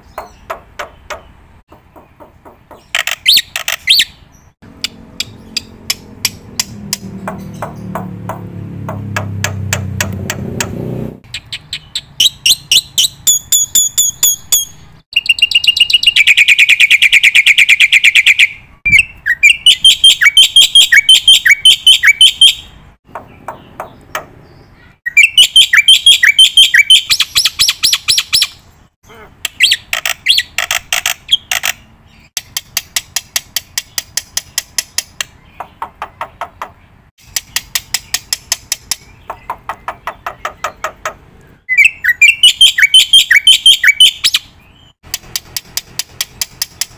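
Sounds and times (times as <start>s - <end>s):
birds chirping and trilling: 0.0s - 46.9s.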